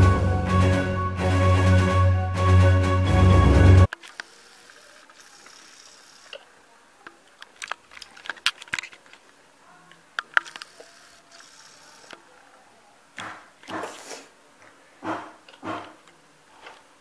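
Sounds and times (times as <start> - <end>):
faint steady hiss: 3.9 - 17.0.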